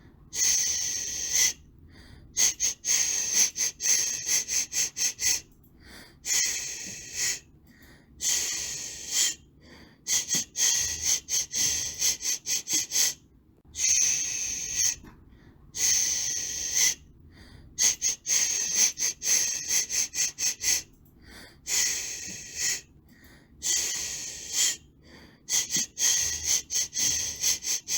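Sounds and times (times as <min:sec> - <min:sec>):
person shushing: 0:10.1 - 0:15.0.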